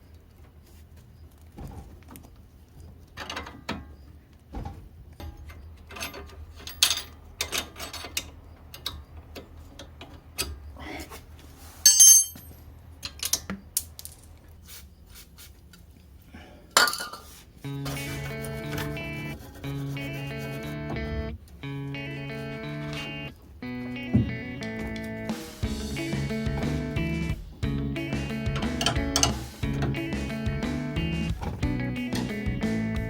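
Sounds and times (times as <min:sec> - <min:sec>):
metal tools clinking: 0:05.1 - 0:10.7, 0:11.8 - 0:14.4, 0:28.6 - 0:30.0
sharp ringing metallic clink: 0:11.9 - 0:12.6.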